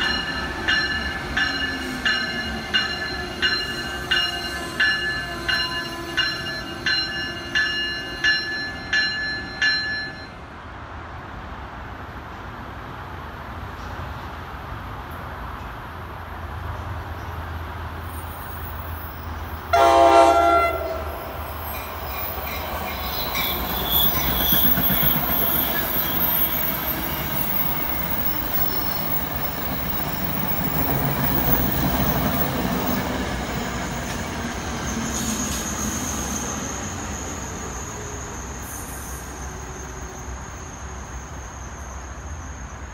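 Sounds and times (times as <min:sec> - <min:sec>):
train running past on tracks: 0:00.0 - 0:42.9
train horn blast: 0:19.7 - 0:21.3
high wheel squeal: 0:21.1 - 0:42.9.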